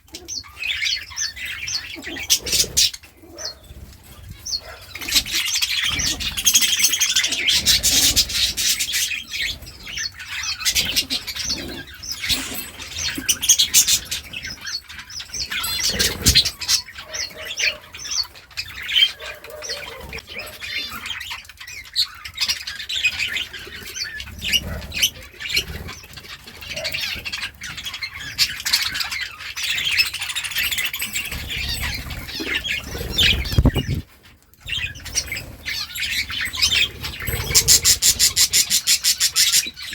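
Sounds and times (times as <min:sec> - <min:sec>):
budgerigars chirping and warbling: 0:00.0 - 0:39.9
wings fluttering: 0:31.1 - 0:34.2, 0:34.8 - 0:39.9.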